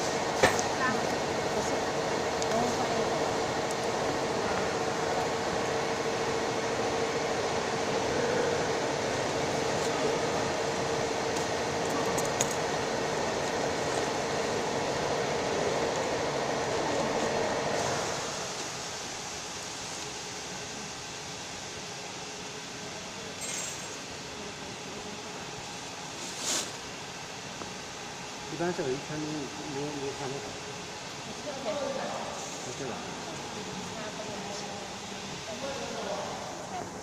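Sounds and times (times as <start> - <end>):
machine humming: 0.0 - 26.1.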